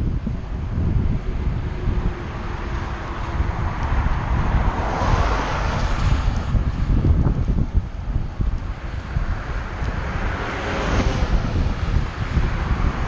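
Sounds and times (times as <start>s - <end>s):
rushing noise: 0.0s - 13.0s
wind buffeting microphone: 0.0s - 13.0s.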